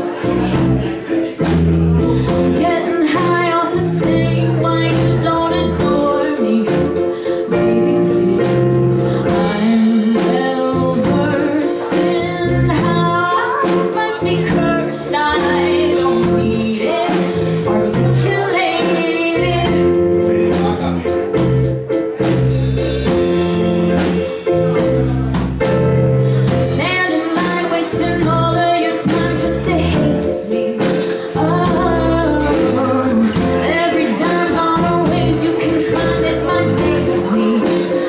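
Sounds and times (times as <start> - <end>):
live band playing: 0.0 - 38.0
woman singing: 2.0 - 20.6, 26.3 - 38.0.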